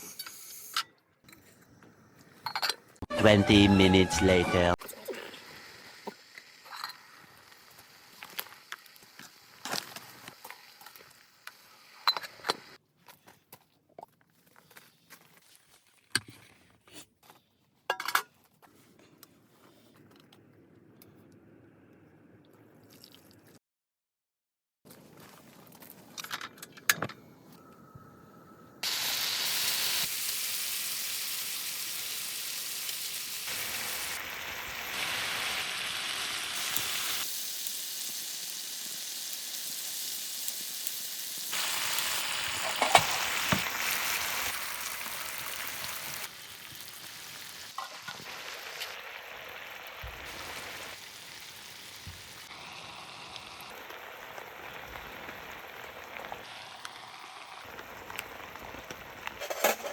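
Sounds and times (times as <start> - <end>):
food sizzling in a pan: 4.9 - 12.8, 28.8 - 59.9.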